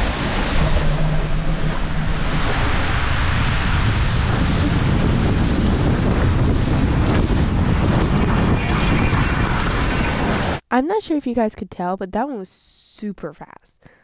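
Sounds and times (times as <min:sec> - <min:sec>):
rushing water: 0:00.0 - 0:06.9
wind buffeting microphone: 0:00.0 - 0:10.6.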